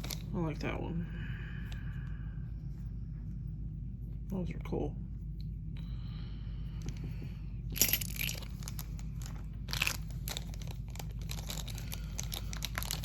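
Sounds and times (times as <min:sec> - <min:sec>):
plastic packaging crinkling: 0:07.8 - 0:13.0.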